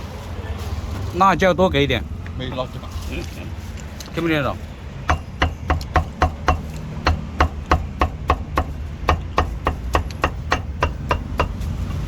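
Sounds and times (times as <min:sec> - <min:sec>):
cleaver chopping on wooden block: 0:05.1 - 0:12.0.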